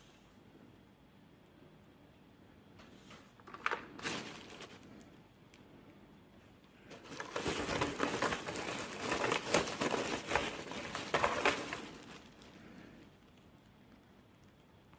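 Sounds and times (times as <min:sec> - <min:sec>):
crinkling and rustling: 0:02.8 - 0:05.6, 0:06.5 - 0:13.7.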